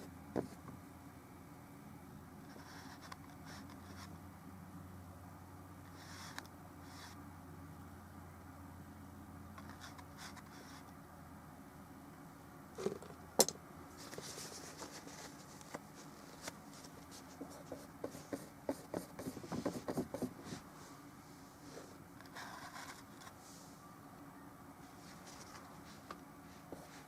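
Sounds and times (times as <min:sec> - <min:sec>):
paintbrush rubbing and scraping: 0:14.0 - 0:20.7.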